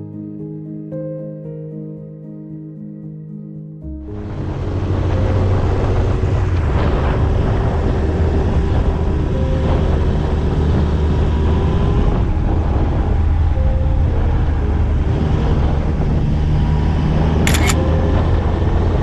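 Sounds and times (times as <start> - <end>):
wind noise on microphone: 4.0 - 19.0.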